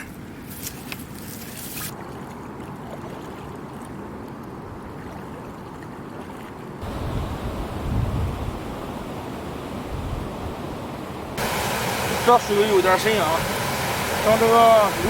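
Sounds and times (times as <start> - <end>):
flowing river water: 0.0 - 15.0
wind rumble on microphone: 6.8 - 11.4.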